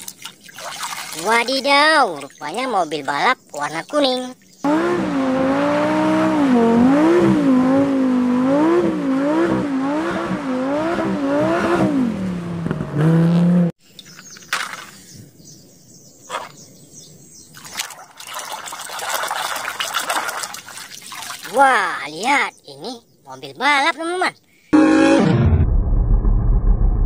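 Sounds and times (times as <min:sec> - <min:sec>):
water splashing: 0:00.0 - 0:04.6, 0:17.5 - 0:21.9
car engine revving: 0:04.6 - 0:13.8.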